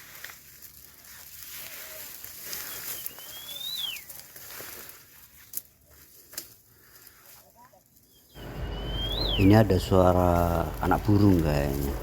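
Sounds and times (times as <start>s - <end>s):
bird's thin whistled call: 2.5s - 4.2s, 8.1s - 9.5s.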